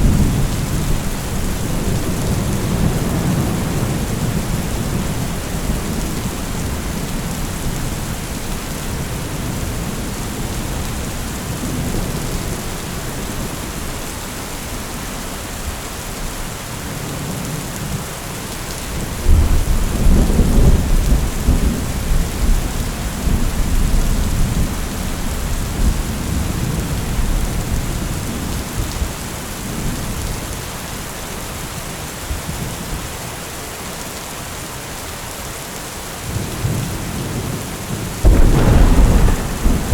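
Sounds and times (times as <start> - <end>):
thunder rumbling: 0.0 - 7.8, 38.2 - 39.9
steady rain falling: 0.0 - 39.9.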